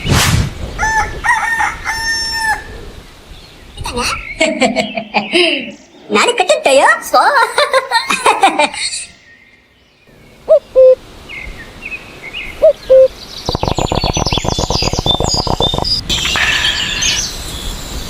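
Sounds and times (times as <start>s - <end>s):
high bird chirping: 9.2s - 11.5s, 12.2s - 18.0s
bird calls rising notes: 9.2s - 18.0s.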